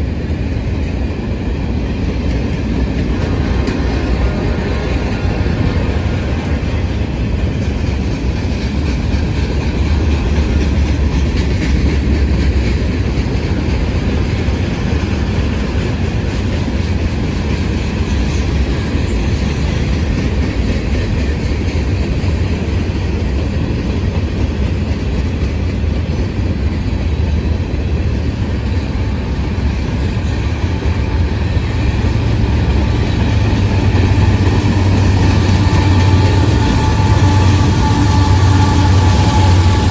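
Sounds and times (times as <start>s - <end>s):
freight train rumbling past: 0.0s - 39.9s
wheels clattering on rails: 0.0s - 39.9s.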